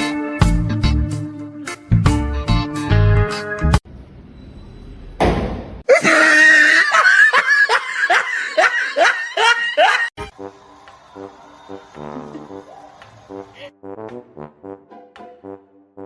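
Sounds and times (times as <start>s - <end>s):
loud human laughter: 5.9s - 10.2s.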